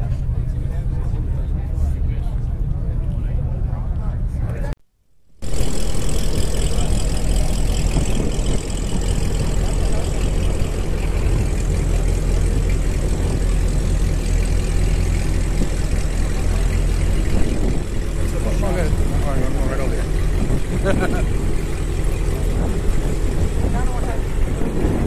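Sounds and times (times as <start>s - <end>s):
car engine idling: 5.4s - 25.0s.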